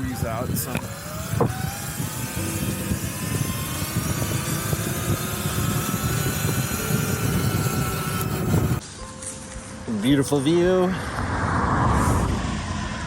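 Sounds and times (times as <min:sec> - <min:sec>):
electric motor whine: 0:00.0 - 0:08.8
wind rumble on microphone: 0:00.0 - 0:08.8, 0:10.8 - 0:13.0.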